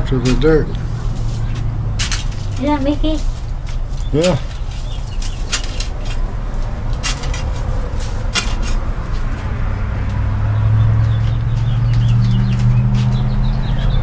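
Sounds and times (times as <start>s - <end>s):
low motor hum: 0.0s - 14.0s
sharp clicks and scrapes: 1.1s - 9.4s.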